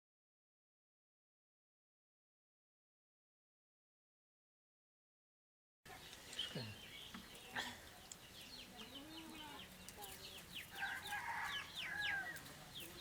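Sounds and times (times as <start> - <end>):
chickens clucking: 5.9 - 13.0
small birds chirping: 5.9 - 13.0.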